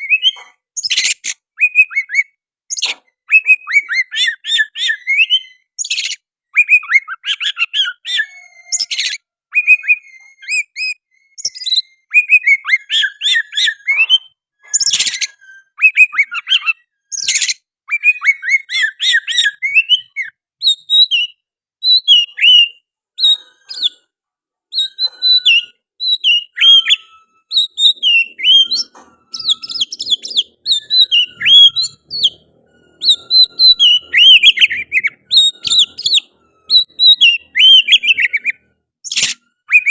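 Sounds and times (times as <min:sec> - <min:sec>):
bird singing whistled phrases: 0:00.0 - 0:24.0, 0:24.7 - 0:39.9
harsh rasping bird notes: 0:24.7 - 0:39.9.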